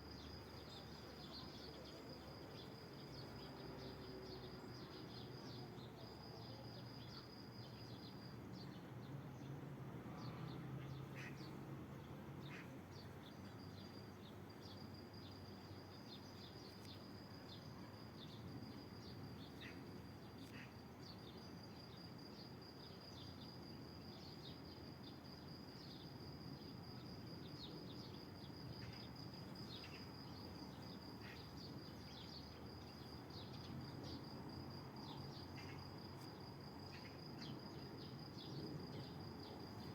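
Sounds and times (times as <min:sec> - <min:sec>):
cricket-like insect trill: 0:00.0 - 0:09.5, 0:12.3 - 0:39.9.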